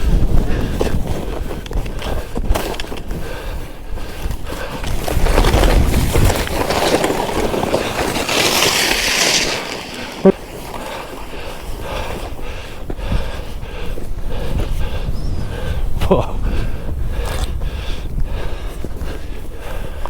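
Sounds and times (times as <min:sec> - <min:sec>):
wind on microphone: 0:00.0 - 0:20.0
skis hissing through powder snow: 0:04.8 - 0:12.1.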